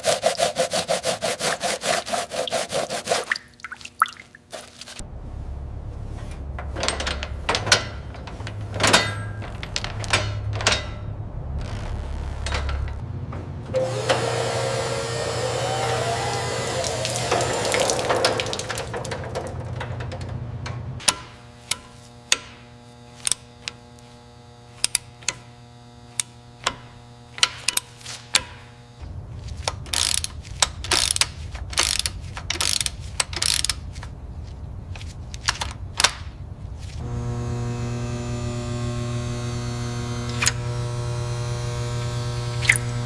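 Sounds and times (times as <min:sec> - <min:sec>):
steady hum: 0:04.7 - 0:43.0
ratchet-like mechanical clicks: 0:29.9 - 0:33.8.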